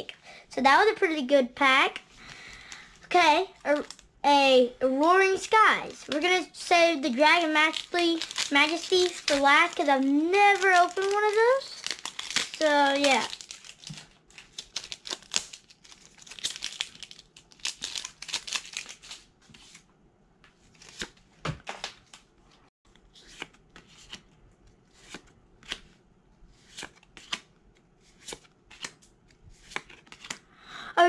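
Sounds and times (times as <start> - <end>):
foil wrapper crinkling and tearing: 7.1 - 19.3
cards flicking: 29.6 - 30.4.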